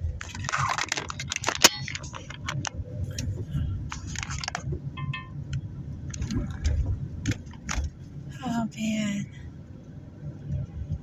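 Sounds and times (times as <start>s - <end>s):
car cabin road noise: 0.0s - 11.0s
small clicks and rattles: 0.2s - 3.3s, 3.9s - 4.8s.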